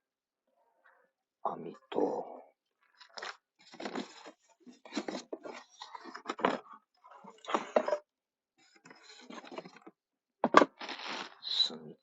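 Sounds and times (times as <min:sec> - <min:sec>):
packaging rustling: 0:10.7 - 0:11.4.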